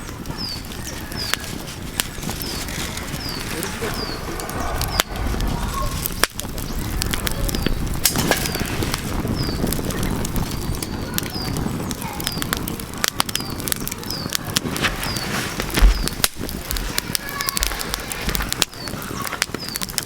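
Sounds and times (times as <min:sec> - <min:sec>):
small bird chirping: 0:00.0 - 0:16.5
wood fire crackling and popping: 0:00.0 - 0:20.0
low rushing noise: 0:01.9 - 0:10.8.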